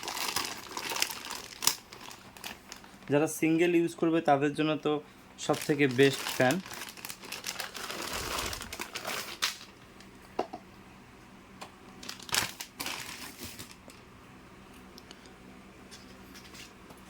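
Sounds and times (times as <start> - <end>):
packaging rustling and crinkling: 0.0 - 3.1, 5.4 - 10.1, 12.0 - 14.0.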